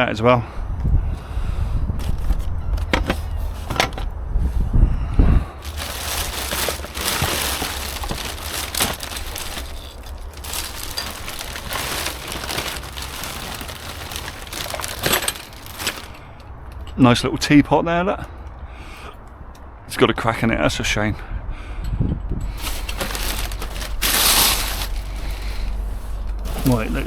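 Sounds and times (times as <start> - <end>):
rubbish crinkling and crunching: 1.9 - 4.2, 5.6 - 16.9, 22.5 - 27.0.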